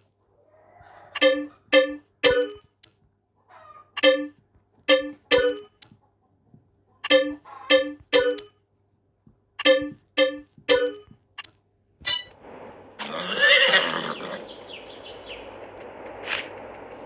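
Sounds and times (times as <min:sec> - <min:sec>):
steady outdoor hiss: 0:12.3 - 0:17.0
horse whinnying: 0:13.0 - 0:14.4.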